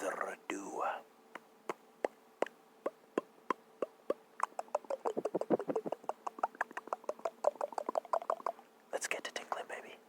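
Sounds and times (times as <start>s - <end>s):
faint hum: 0.0s - 10.0s
sharp clicks and taps: 1.3s - 2.6s.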